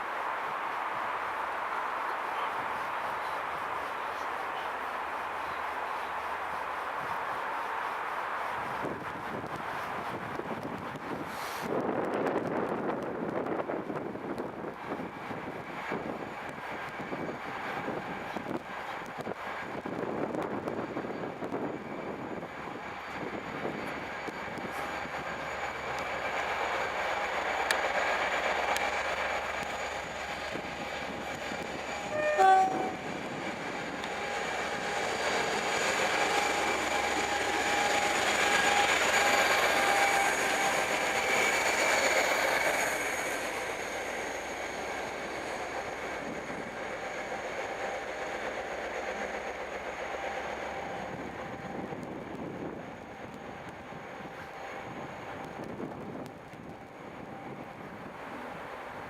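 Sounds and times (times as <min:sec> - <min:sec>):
diesel locomotives passing: 0:00.0 - 0:59.0
train horn blast: 0:32.1 - 0:33.1.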